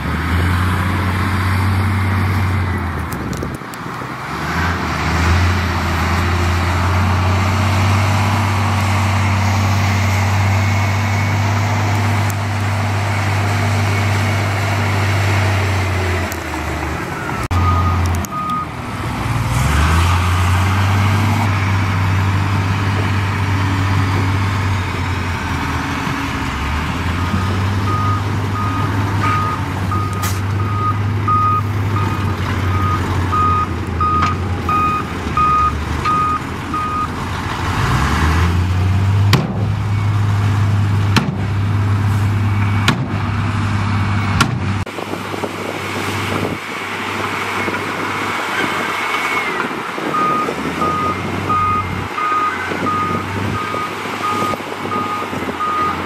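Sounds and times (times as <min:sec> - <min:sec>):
heavy diesel engine revving: 0:00.0 - 0:56.0
reversing alarm beeping: 0:17.2 - 0:18.7, 0:27.2 - 0:37.1, 0:50.1 - 0:56.0.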